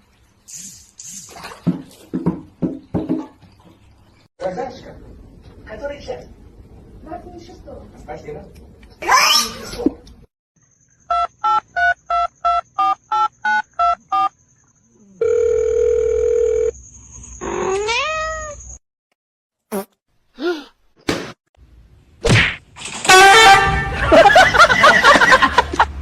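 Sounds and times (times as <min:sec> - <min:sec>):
cat meowing: 0:17.7 - 0:18.6.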